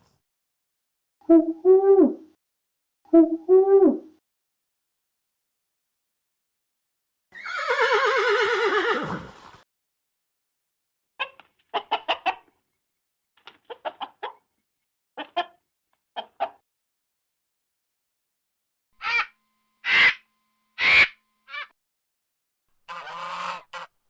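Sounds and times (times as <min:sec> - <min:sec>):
chickens clucking: 0:11.2 - 0:12.6, 0:13.5 - 0:14.4, 0:15.2 - 0:15.6, 0:16.2 - 0:16.6, 0:22.9 - 0:23.9.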